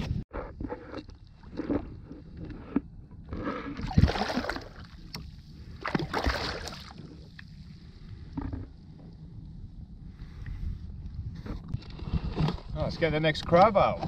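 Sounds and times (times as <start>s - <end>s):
water splashing against kayak: 3.7s - 7.3s.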